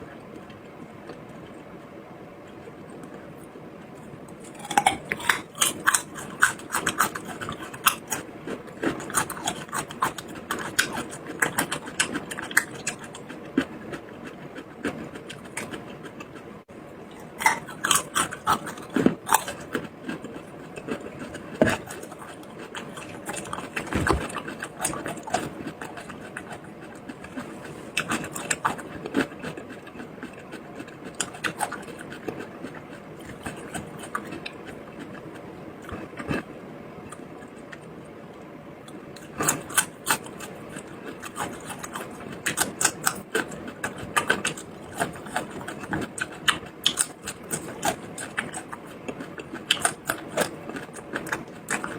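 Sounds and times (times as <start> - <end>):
chewing and mouth clicks: 4.3 - 16.5, 17.1 - 51.9.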